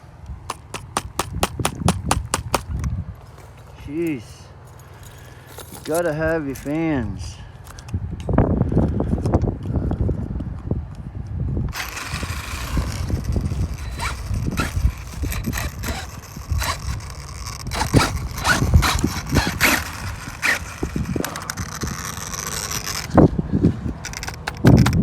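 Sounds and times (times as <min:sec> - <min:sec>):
small cooling fan whining: 0:00.0 - 0:25.0
clicks and knocks of handling: 0:23.9 - 0:25.0.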